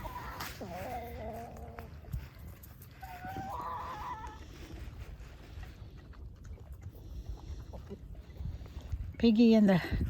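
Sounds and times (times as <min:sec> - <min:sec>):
hens calling: 0:00.0 - 0:02.2, 0:02.9 - 0:04.9.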